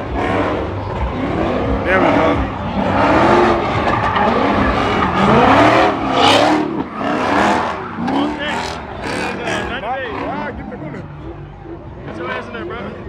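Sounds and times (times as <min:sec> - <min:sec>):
car engine revving: 0:00.0 - 0:13.0
tyres squealing: 0:01.1 - 0:10.8.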